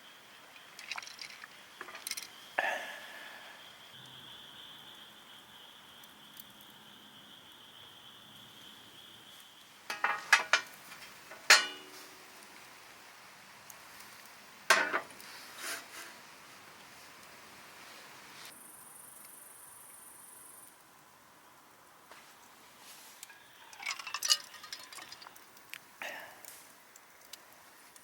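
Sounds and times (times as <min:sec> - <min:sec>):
metal cookware clinking: 0:09.9 - 0:10.7, 0:11.3 - 0:12.0, 0:23.7 - 0:25.3.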